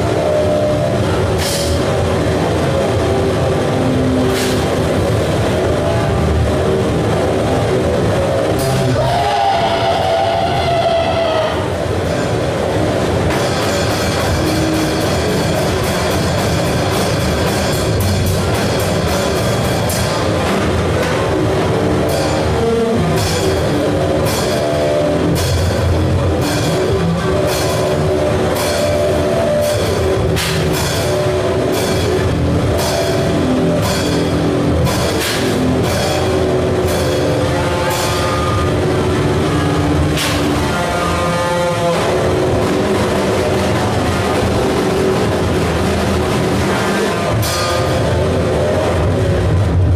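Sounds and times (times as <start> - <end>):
distorted noise wall: 0.0 - 49.9
sharp percussive hits: 1.3 - 2.3, 11.9 - 49.9.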